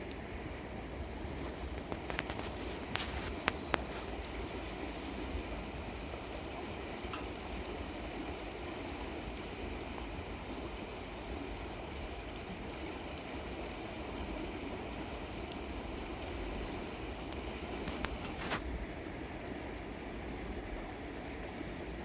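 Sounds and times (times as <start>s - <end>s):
flowing river water: 0.0s - 22.0s
faint sharp clicks: 9.2s - 10.6s, 17.3s - 18.6s.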